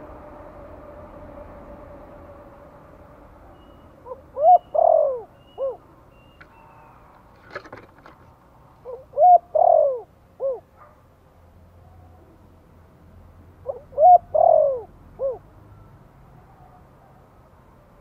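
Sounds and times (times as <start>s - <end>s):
dove cooing: 4.0s - 5.9s, 8.8s - 10.7s, 13.6s - 15.5s.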